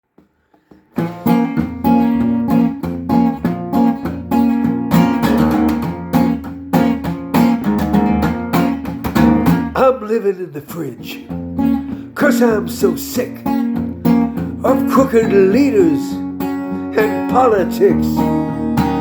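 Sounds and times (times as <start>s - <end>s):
acoustic guitar strumming: 0.4s - 19.0s.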